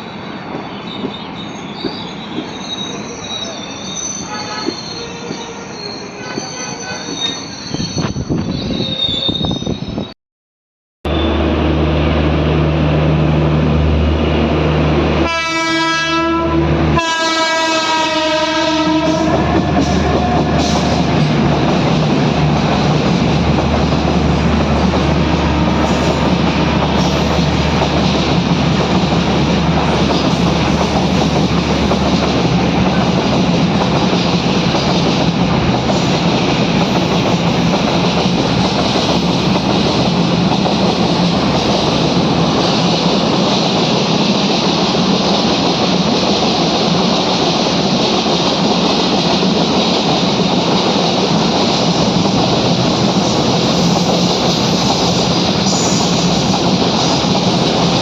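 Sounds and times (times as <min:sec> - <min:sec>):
train wheels rumbling and rattling: 0:16.7 - 0:58.0.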